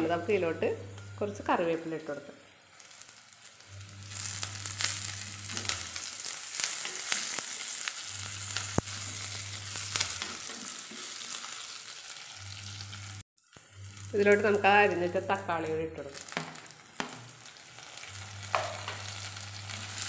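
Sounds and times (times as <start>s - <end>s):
food sizzling in hot oil: 0.0s - 20.0s
sharp crackles: 2.7s - 10.4s.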